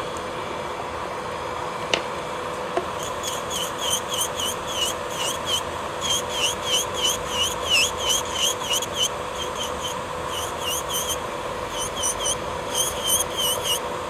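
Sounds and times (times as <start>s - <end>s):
electric nail drill whine: 2.9s - 14.0s
high short chirping squeaks: 3.0s - 13.8s.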